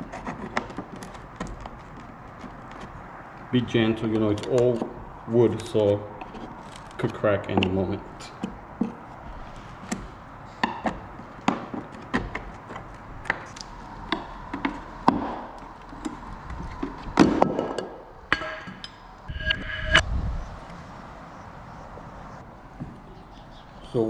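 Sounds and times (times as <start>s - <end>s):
wooden clatter: 0.0s - 3.2s, 4.0s - 18.8s
wooden knocks and taps: 9.9s - 18.8s.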